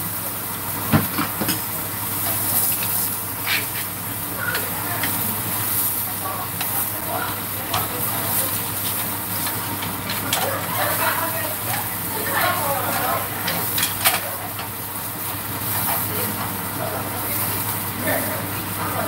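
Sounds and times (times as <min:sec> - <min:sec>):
food sizzling in oil: 0:00.0 - 0:19.0
utensils clicking against pan: 0:02.2 - 0:14.8, 0:15.4 - 0:17.8.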